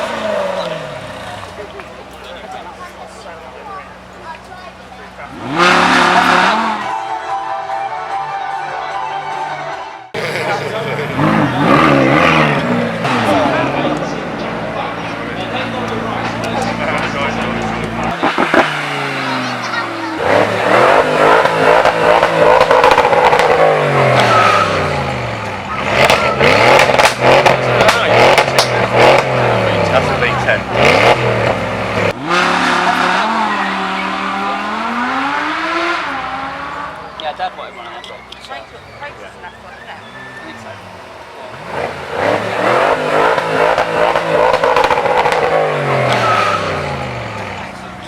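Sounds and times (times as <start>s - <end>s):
car engine revving: 0.0s - 7.4s, 10.1s - 48.0s.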